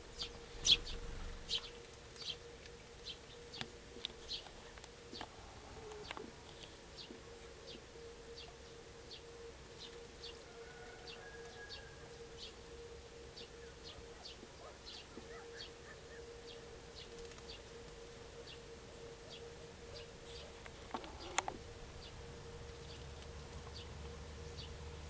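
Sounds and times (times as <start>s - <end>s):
small bird calling: 0.0s - 4.5s, 13.4s - 17.7s
low hum: 0.0s - 25.0s.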